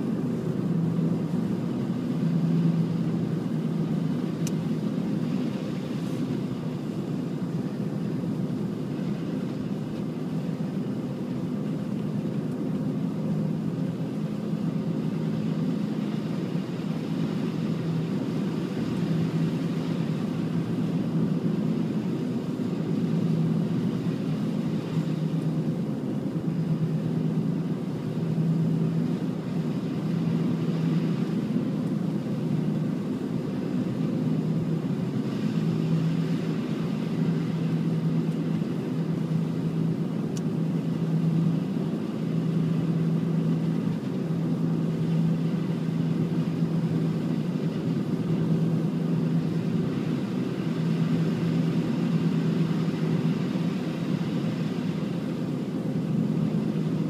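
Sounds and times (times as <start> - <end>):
engine humming: 0.0 - 57.0.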